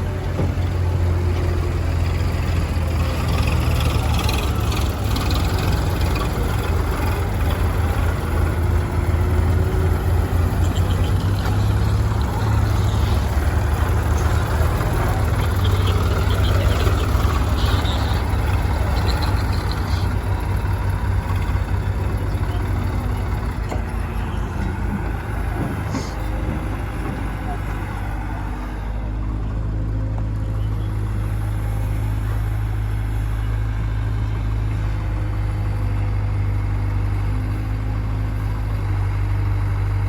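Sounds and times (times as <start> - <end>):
diesel engine droning: 0.0 - 40.0.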